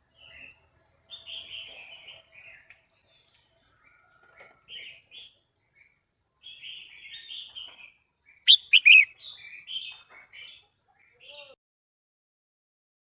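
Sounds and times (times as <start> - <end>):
bird chattering chirps: 8.5 - 9.1
sharp bird notes: 8.5 - 9.1.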